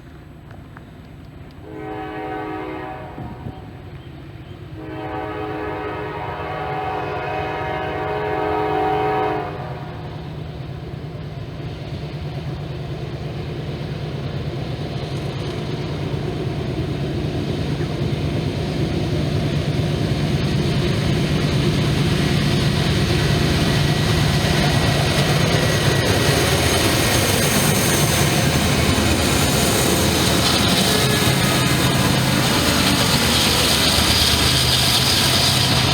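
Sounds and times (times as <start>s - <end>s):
train engine rumble: 0.0s - 35.9s
train wheel noise: 0.0s - 35.9s
locomotive horn chord: 1.6s - 3.6s, 4.8s - 10.0s.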